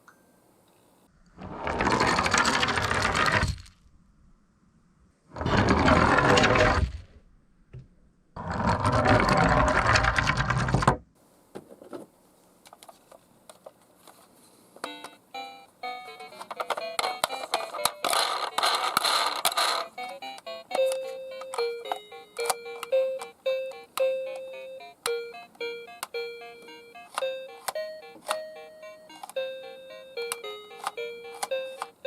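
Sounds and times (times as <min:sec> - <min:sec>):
toy cars rolling down a slope: 0:01.3 - 0:03.8, 0:05.4 - 0:07.0, 0:08.4 - 0:10.9, 0:16.6 - 0:20.1.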